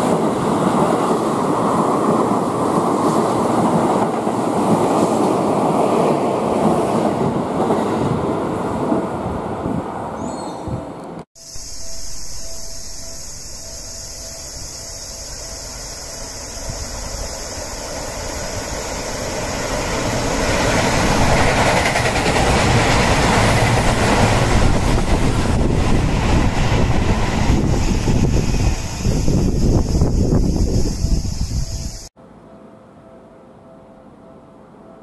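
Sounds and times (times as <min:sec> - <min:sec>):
electric train passing: 0:00.0 - 0:35.0
faint pulsing tone: 0:11.4 - 0:17.4.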